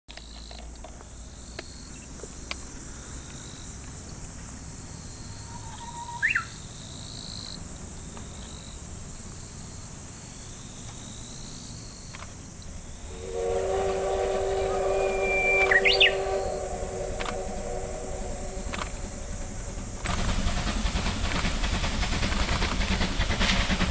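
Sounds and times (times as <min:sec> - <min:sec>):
bird chirp: 0:05.3 - 0:06.6, 0:14.5 - 0:17.0
insects shrilling: 0:11.2 - 0:21.2.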